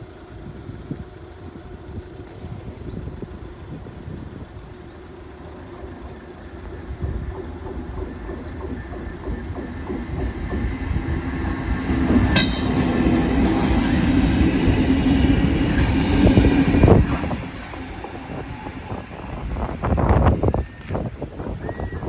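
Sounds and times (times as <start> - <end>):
diesel locomotive engine: 0.0 - 22.0
train wheel clatter: 0.0 - 22.0
wheel squeal: 18.3 - 22.0.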